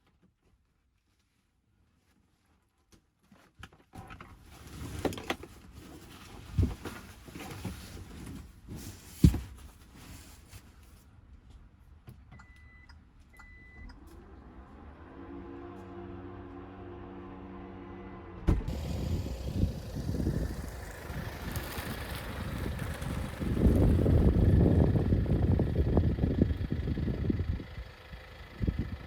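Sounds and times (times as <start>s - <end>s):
rustling and handling noise: 0.0s - 11.8s.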